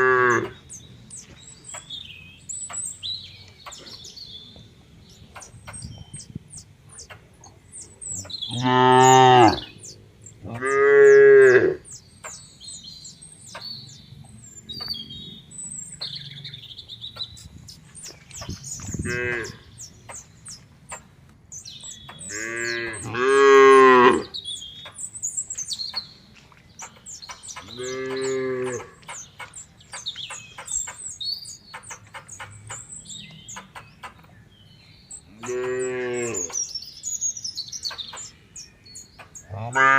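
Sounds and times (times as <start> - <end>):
birds chirping: 0.0 - 39.9
cattle mooing: 8.5 - 9.6, 39.6 - 39.9.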